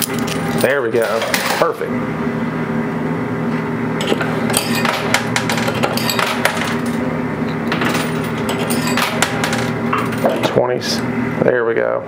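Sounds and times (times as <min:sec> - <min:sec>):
coins clicking and clinking: 0:04.0 - 0:07.0, 0:07.7 - 0:10.4.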